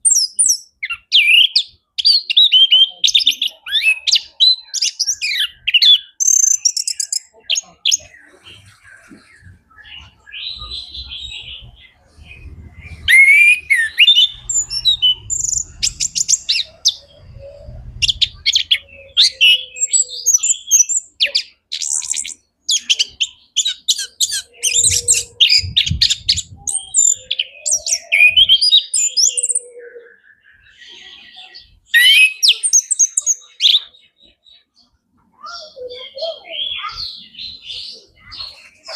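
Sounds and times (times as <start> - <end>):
thrush singing trills and whistles: 0.0 - 33.9
low thumps: 10.6 - 13.3.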